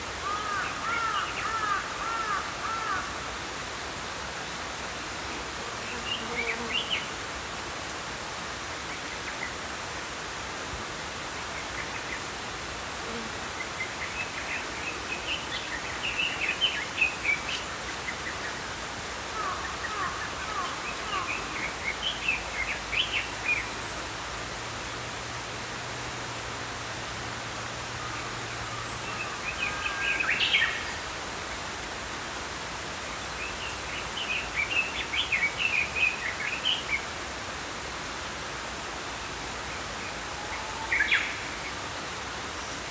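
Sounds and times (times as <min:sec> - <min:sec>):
stream flowing: 0:07.0 - 0:42.9.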